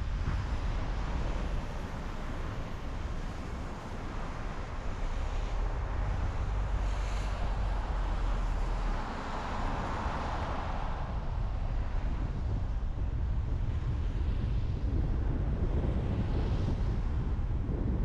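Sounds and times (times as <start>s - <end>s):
road and tyre noise: 0.0s - 18.0s.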